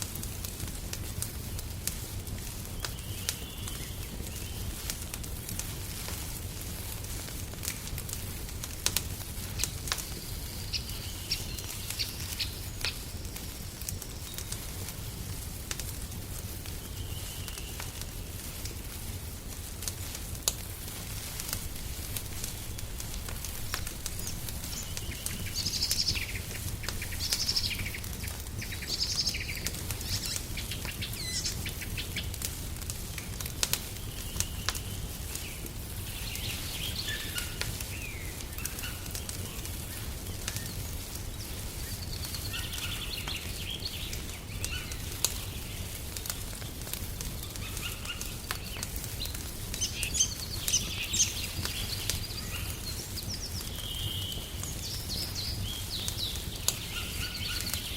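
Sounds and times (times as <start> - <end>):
wood fire crackling and popping: 0.0 - 57.9
birds chirping and singing: 23.7 - 32.3, 36.1 - 39.3, 40.5 - 45.7, 47.5 - 57.9.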